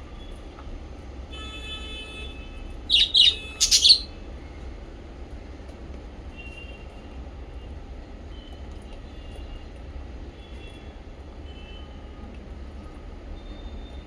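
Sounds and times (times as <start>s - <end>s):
small parrots chirping: 2.9s - 4.1s.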